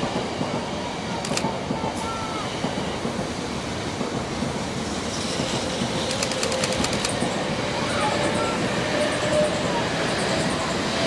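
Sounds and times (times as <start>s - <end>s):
train rumbling past: 0.0s - 11.0s
sharp ticks: 6.0s - 7.3s.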